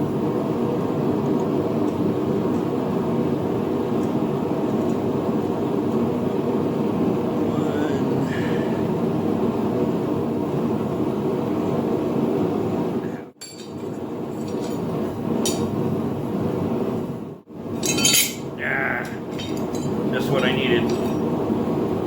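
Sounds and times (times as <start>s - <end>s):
forge roaring: 6.2s - 17.0s, 17.6s - 22.0s
steel clinking against metal: 13.4s - 15.7s, 17.8s - 21.3s.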